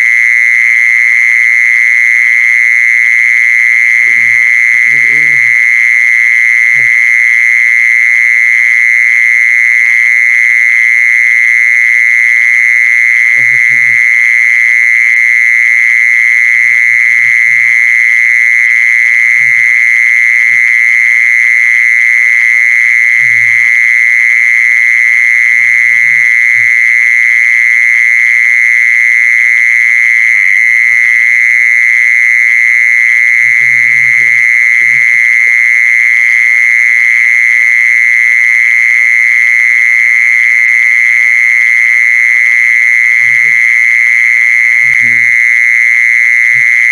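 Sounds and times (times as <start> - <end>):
insect high trill: 3.4 - 7.7, 13.0 - 28.0, 41.5 - 46.9.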